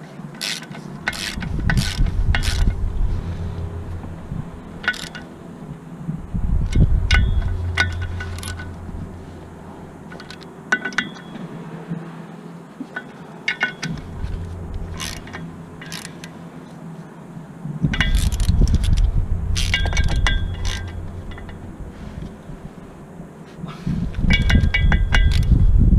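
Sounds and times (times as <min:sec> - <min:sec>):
rumbling handling noise: 0:00.0 - 0:25.9
metal tools clinking: 0:00.4 - 0:04.0, 0:04.7 - 0:05.3, 0:06.6 - 0:11.5, 0:12.9 - 0:16.4, 0:17.9 - 0:21.8.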